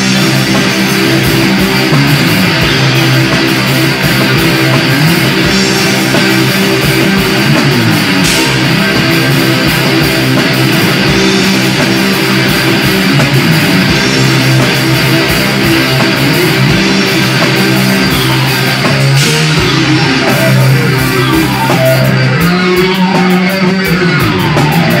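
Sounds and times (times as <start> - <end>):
drums: 0.0 - 25.0
electric guitar: 0.0 - 25.0.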